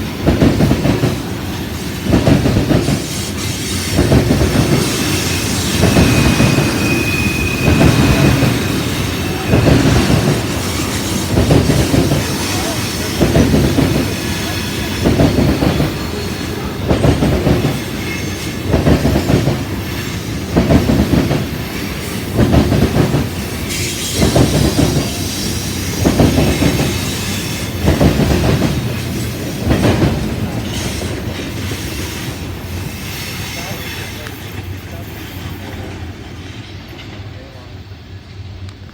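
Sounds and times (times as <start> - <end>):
train wheels clattering on rails: 0.0 - 37.6
high wheel squeal: 4.8 - 13.2.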